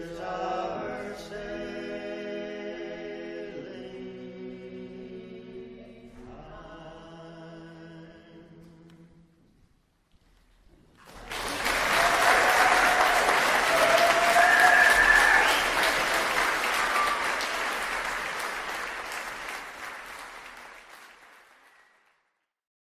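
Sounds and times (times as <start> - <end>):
audience applauding: 11.0 - 22.2.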